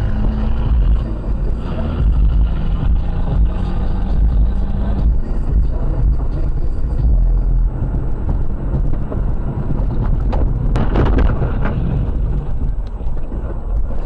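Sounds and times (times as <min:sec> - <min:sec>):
vehicle engine and road rumble: 0:00.0 - 0:14.0
wind buffeting microphone: 0:04.3 - 0:14.0
sharp knocks and rattles: 0:07.9 - 0:14.0.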